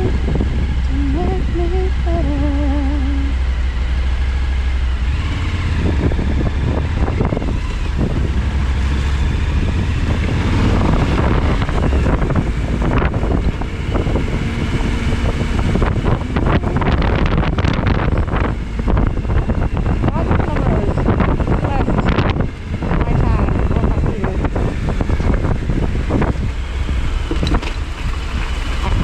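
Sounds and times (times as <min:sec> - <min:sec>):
motorcycle engine running: 0:00.0 - 0:29.0
wind buffeting microphone: 0:00.0 - 0:29.0.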